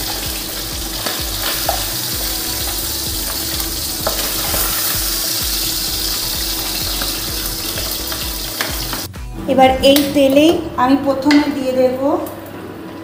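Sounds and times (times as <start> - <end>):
fish sizzling in hot oil: 0.0 - 9.1.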